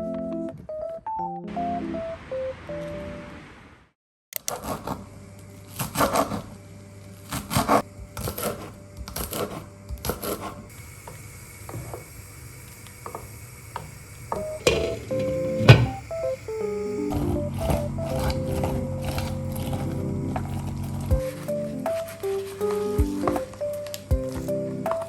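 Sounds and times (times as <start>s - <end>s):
background music: 0.0s - 3.4s, 14.5s - 25.0s
steady low hum: 5.0s - 24.9s.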